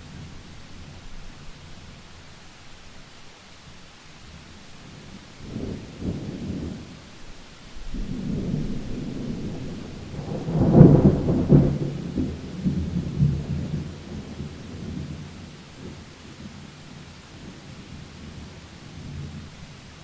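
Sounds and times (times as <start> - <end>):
steady rain hiss: 0.0 - 20.0
thunder rumbling and cracking: 7.8 - 16.0.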